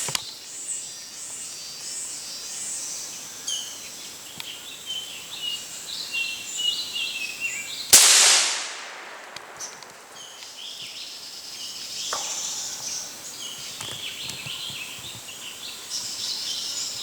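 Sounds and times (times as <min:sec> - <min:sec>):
gunshot: 0:08.0 - 0:11.0, 0:12.1 - 0:12.9
birds chirping and whistling: 0:09.5 - 0:17.0.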